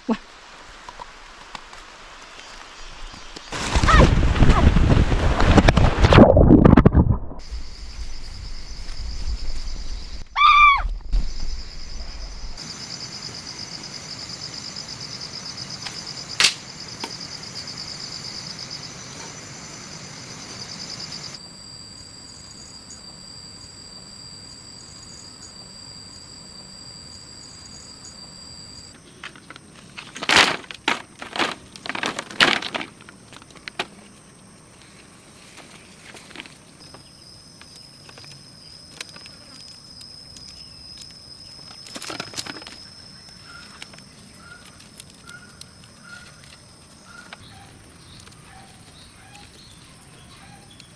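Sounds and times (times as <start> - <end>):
insects trilling: 7.4 - 50.9
rising and falling call: 10.2 - 11.2
sharp click: 16.4 - 16.6.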